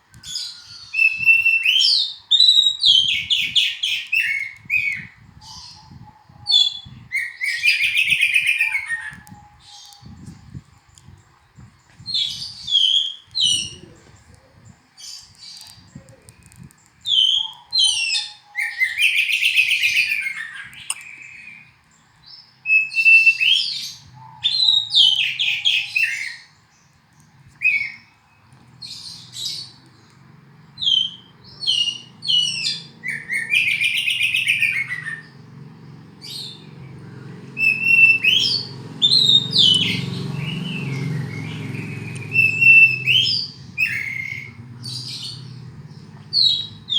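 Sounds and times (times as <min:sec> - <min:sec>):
bird singing whistles: 0:00.3 - 0:10.2, 0:22.7 - 0:23.9, 0:30.8 - 0:35.4, 0:37.6 - 0:45.3.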